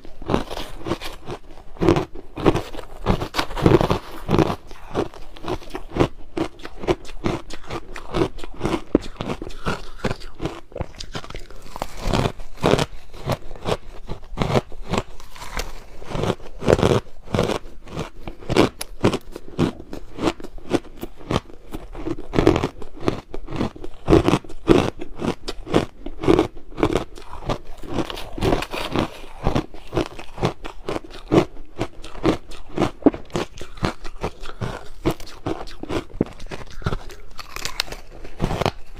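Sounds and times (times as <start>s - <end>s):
crushed ice crunching: 0.0s - 6.0s, 8.0s - 14.3s, 14.9s - 17.0s, 27.2s - 31.0s.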